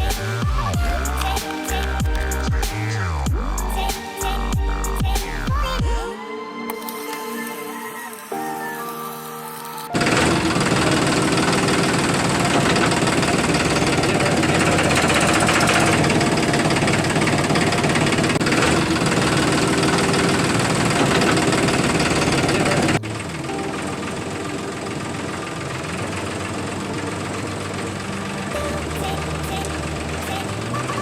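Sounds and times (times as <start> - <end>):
engine running with rattling: 10.0 - 31.0.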